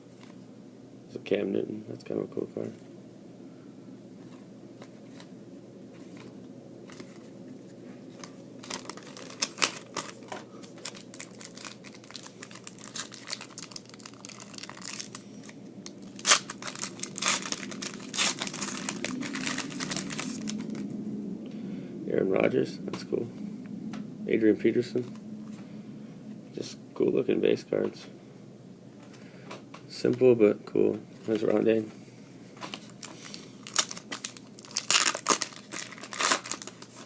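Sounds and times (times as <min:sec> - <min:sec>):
steady low hum: 0:00.0 - 0:37.0
card wrappers torn and crinkled: 0:08.2 - 0:20.9, 0:32.6 - 0:37.0.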